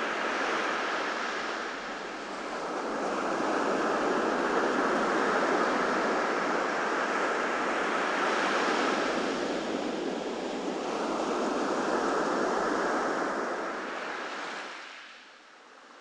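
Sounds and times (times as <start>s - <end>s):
ocean surf washing onto beach: 0.0s - 15.2s.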